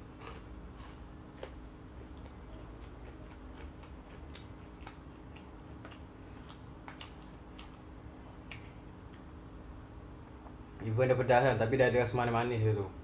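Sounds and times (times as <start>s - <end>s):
low steady hum: 0.0s - 13.0s
wet chewing and mouth smacks: 0.2s - 9.3s.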